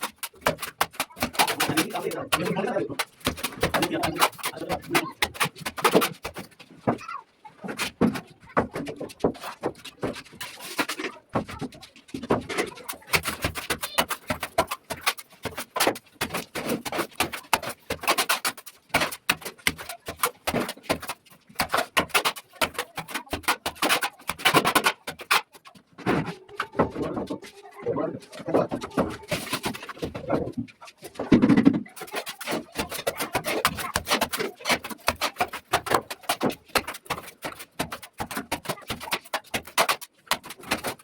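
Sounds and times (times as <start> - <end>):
trowel scraping and knocking plaster: 0.0 - 41.0.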